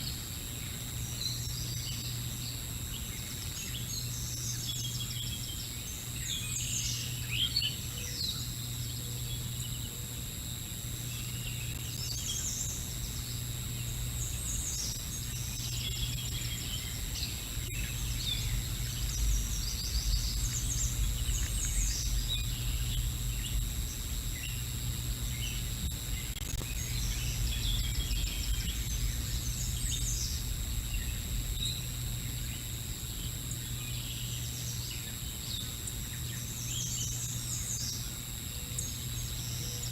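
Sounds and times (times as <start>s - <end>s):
steady low hum: 0.0s - 39.9s
songbirds chirping: 0.1s - 39.9s
low rumble: 18.0s - 32.5s.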